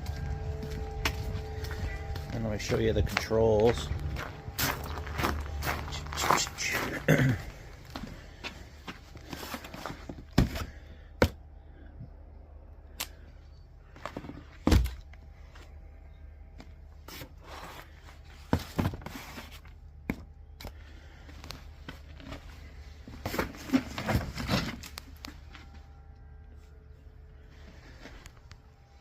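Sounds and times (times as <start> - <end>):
faint low hum: 0.0 - 29.0.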